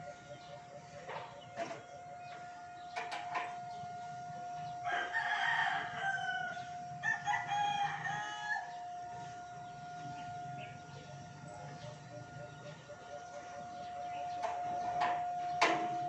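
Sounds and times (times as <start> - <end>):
rooster crowing: 4.5 - 16.0.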